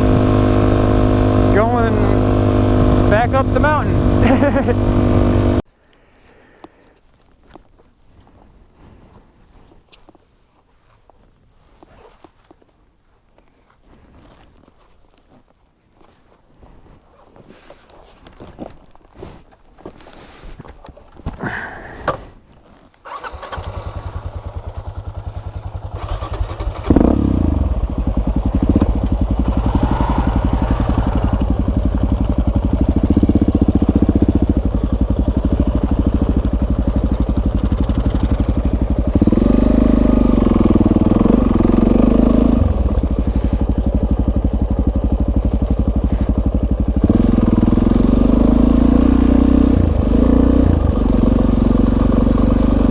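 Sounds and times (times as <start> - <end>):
motorcycle engine starting and idling: 0.0 - 5.7, 23.0 - 52.9.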